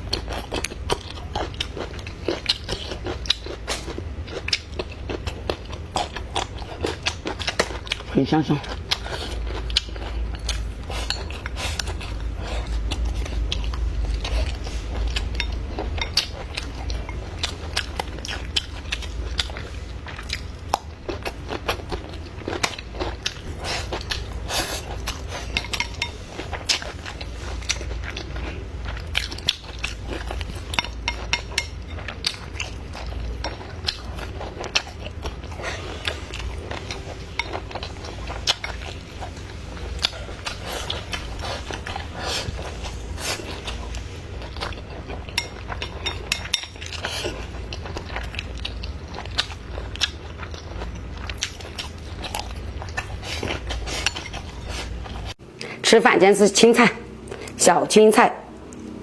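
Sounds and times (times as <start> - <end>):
steady low rumble: 0.0 - 30.9
person chewing food: 0.0 - 55.8, 57.1 - 57.6, 58.5 - 59.0.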